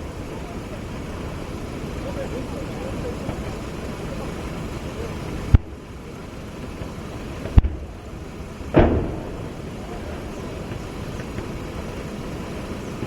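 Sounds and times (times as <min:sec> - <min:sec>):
steady low rumble: 0:00.0 - 0:13.0
sharp gunshot crack: 0:08.7 - 0:09.6
heavy gunshot blast: 0:08.7 - 0:09.7.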